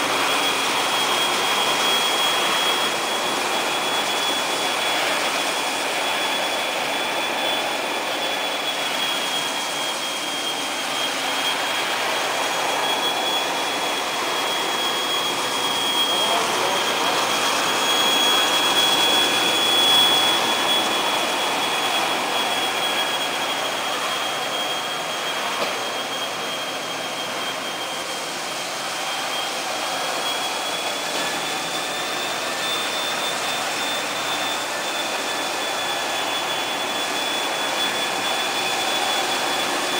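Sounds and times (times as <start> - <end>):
floor-washing machine whining: 0.0 - 39.9.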